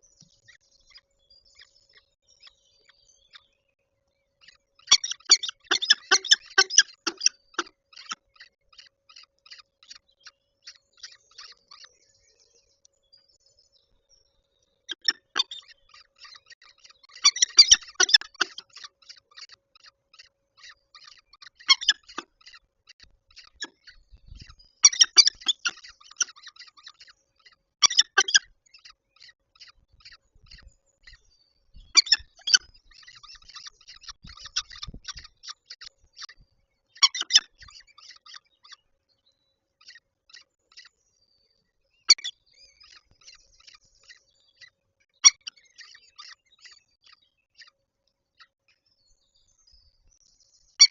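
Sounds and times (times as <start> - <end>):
falcon chattering calls: 4.8 - 8.2, 14.9 - 15.6, 17.1 - 19.5, 20.2 - 22.6, 23.3 - 27.1, 27.8 - 28.5, 31.9 - 36.3, 37.0 - 38.4.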